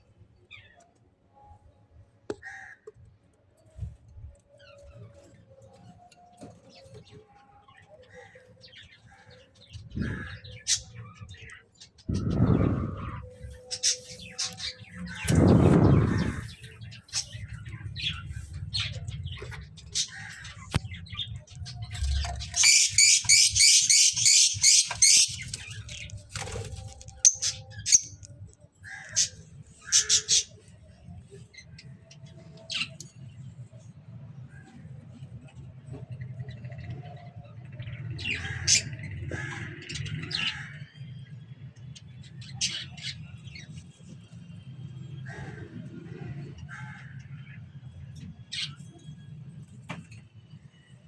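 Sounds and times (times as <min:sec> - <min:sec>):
caged birds chirping and squawking: 0:00.1 - 0:51.0
steady low hum: 0:09.8 - 0:22.6
loud low sound: 0:15.2 - 0:16.6
rapid high-pitched bird chirps: 0:22.6 - 0:26.0.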